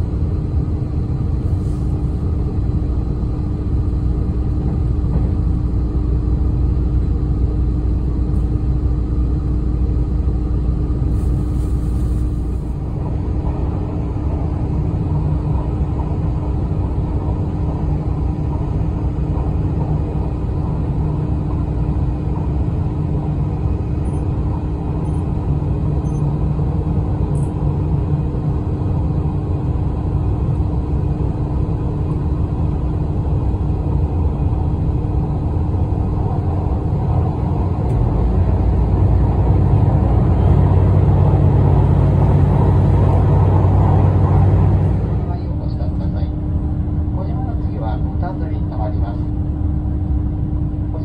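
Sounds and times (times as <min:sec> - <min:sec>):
train rumble inside carriage: 0:00.0 - 0:51.0.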